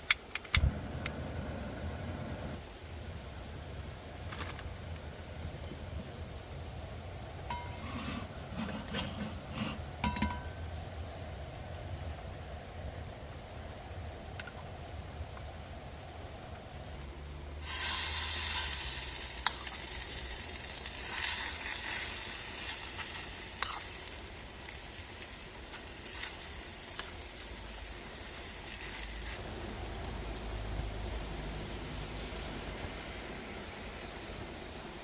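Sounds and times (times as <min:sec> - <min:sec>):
low traffic rumble: 0:00.0 - 0:35.0
batter sizzling in a pan: 0:17.6 - 0:33.2.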